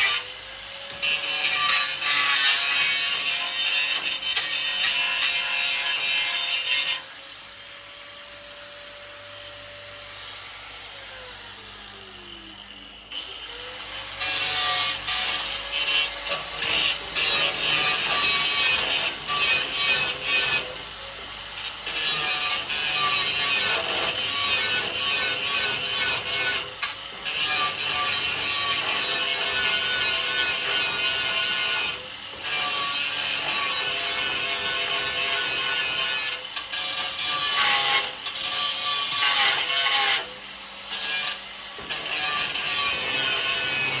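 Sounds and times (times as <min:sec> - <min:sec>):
power grinder grinding metal: 0:00.0 - 0:44.0
grinder winding down whine: 0:10.8 - 0:13.9.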